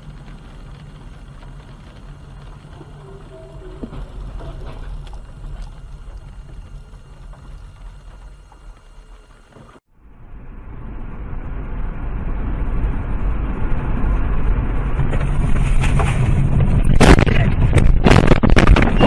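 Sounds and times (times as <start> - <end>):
rumbling vehicle noise: 0.0 - 19.0
vehicle collision bangs and crunches: 14.9 - 19.0.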